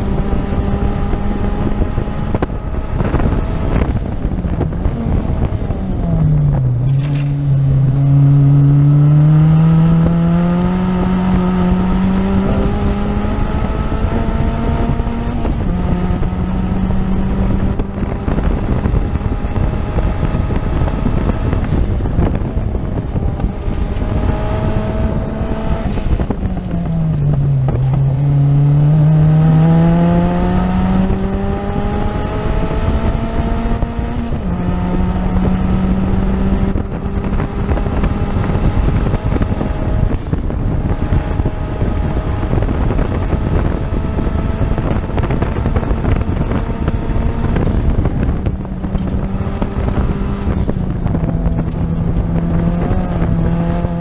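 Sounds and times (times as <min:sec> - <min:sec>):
race car engine running hard: 0:00.0 - 0:54.0
wind and road noise: 0:00.0 - 0:54.0.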